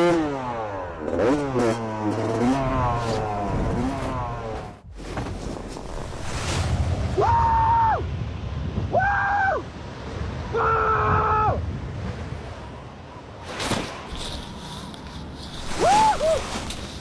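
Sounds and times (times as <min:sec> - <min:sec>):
motocross bike engine revving: 0:00.0 - 0:04.9
wind rumble on microphone: 0:02.6 - 0:17.0.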